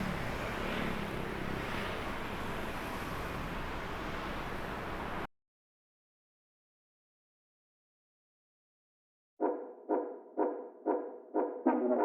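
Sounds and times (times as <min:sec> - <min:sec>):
outdoor rumble: 0:00.0 - 0:05.2.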